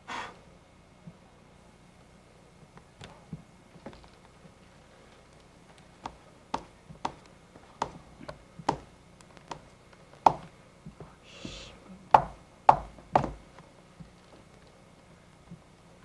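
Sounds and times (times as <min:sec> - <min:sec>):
sharp taps: 0:08.6 - 0:10.5
short hiss: 0:11.2 - 0:11.8.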